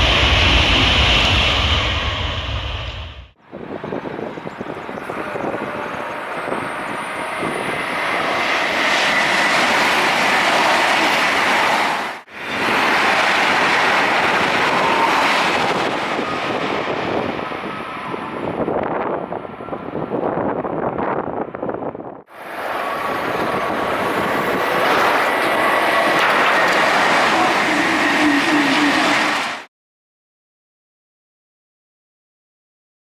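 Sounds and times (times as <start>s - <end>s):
high-speed train passing: 0.0s - 29.7s.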